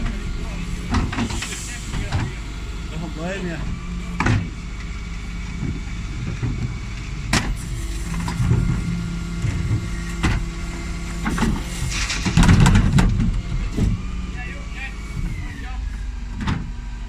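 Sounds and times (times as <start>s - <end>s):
diesel engine running: 0.0s - 17.0s
sharp knocks and clattering: 0.8s - 2.4s, 5.4s - 14.0s.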